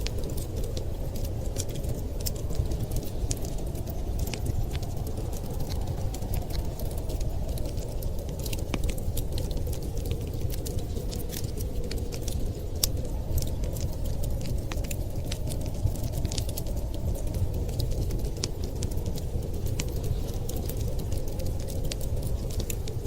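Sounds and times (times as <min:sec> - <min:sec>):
low fire rumble: 0:00.0 - 0:23.0
wood fire snaps and pops: 0:00.0 - 0:23.0.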